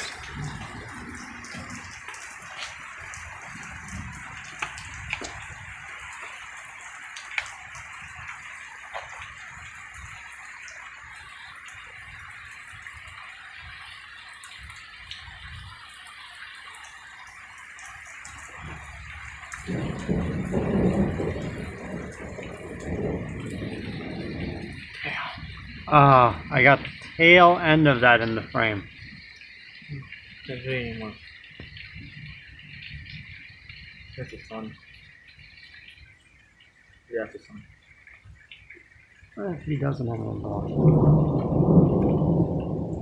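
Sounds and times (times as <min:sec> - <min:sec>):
thunder rumbling: 0:00.0 - 0:10.3, 0:18.5 - 0:29.3, 0:39.6 - 0:43.0
steady rain hissing: 0:00.0 - 0:43.0
water dripping and tapping: 0:00.0 - 0:43.0.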